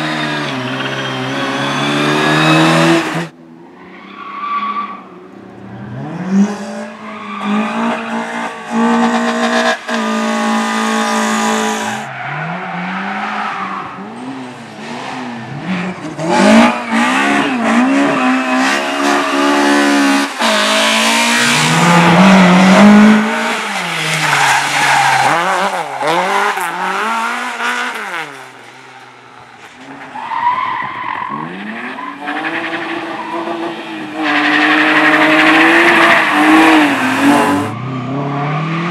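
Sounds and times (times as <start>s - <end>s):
tyres squealing and skidding: 0.0s - 5.2s, 6.6s - 38.9s
race car engine revving: 5.6s - 28.6s, 31.3s - 38.9s.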